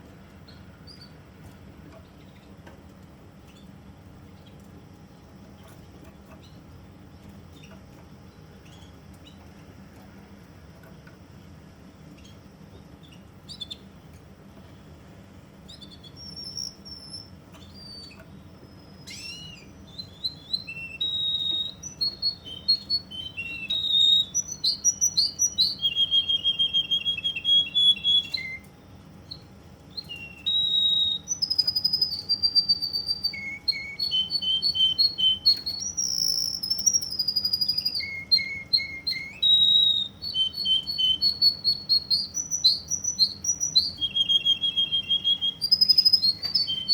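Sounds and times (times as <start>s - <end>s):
canary singing: 0.0s - 1.3s, 7.5s - 9.6s, 12.0s - 14.1s, 15.6s - 46.9s.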